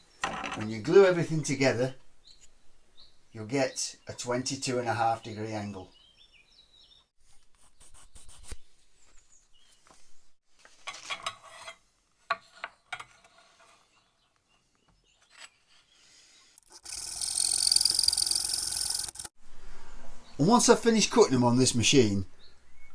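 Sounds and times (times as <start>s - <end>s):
wooden pieces knocking and scraping: 0.2s - 0.8s
power tool motor running: 16.6s - 19.3s.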